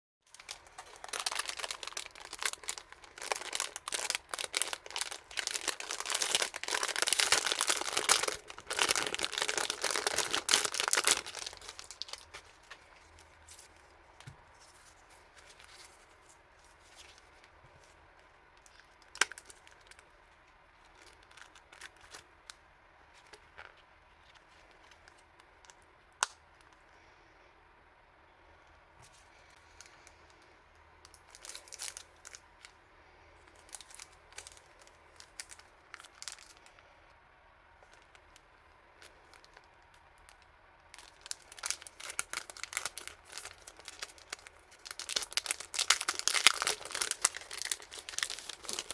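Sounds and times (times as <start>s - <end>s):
plastic packaging crinkling and tearing: 0.3s - 13.9s, 18.6s - 20.1s, 20.8s - 22.2s, 31.1s - 32.8s, 33.5s - 36.8s, 39.0s - 48.9s.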